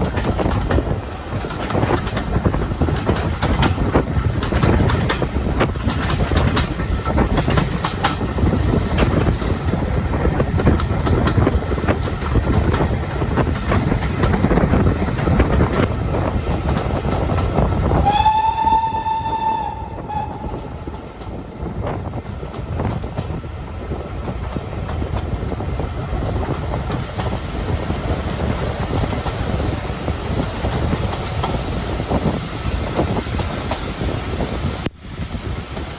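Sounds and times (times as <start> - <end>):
rail clicks: 0.0 - 35.9
train rumbling: 0.0 - 35.9
train whistle: 18.0 - 20.9.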